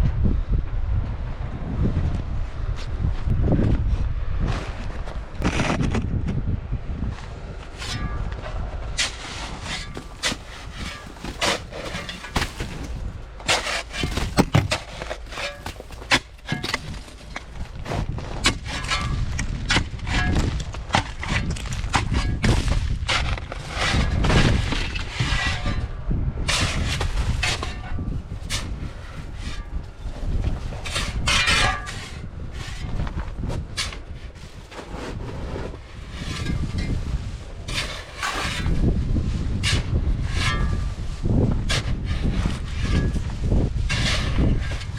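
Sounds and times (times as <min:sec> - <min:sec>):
wind rumble on microphone: 0:00.0 - 0:44.9.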